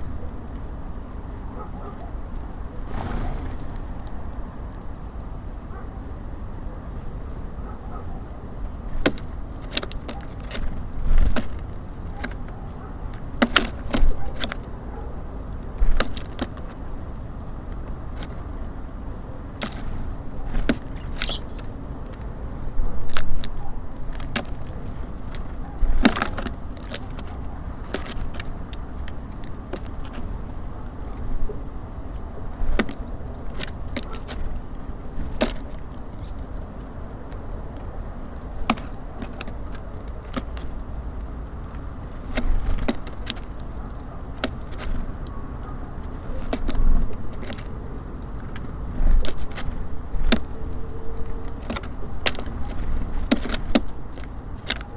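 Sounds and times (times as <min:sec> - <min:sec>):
birds pecking at feeder: 0:00.0 - 0:54.9.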